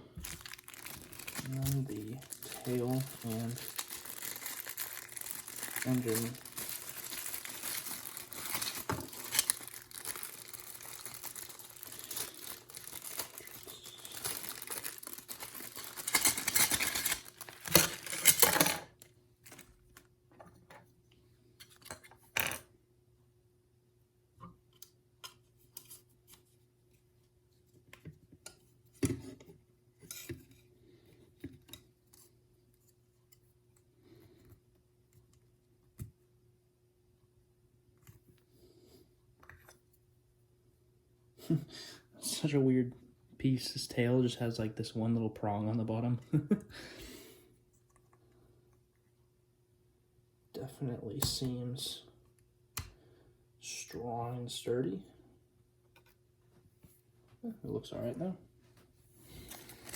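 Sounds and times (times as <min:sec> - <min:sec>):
faint steady hum: 0:00.0 - 0:59.9
plastic packaging crinkling and tearing: 0:00.1 - 0:20.1, 0:59.4 - 0:59.9.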